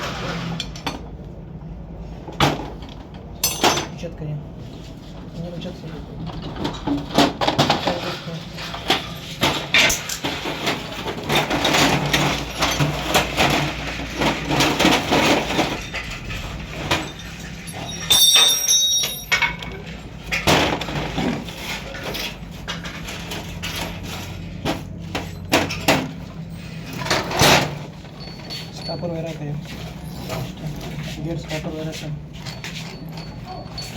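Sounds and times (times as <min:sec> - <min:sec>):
metal parts knocking and clattering: 0:02.3 - 0:04.0, 0:06.3 - 0:29.3
ringing metal clink: 0:17.6 - 0:19.8.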